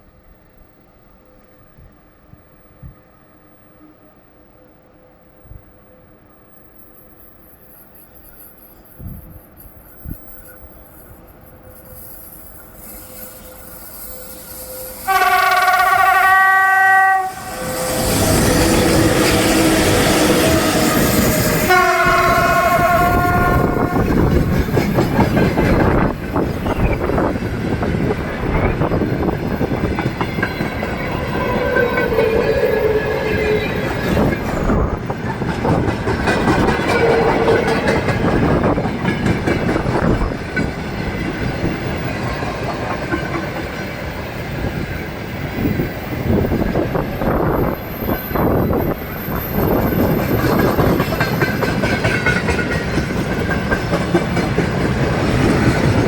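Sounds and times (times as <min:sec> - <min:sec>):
train horn: 0:13.2 - 0:24.4
train wheels clacking over rail joints: 0:17.6 - 0:46.9, 0:49.4 - 0:56.0.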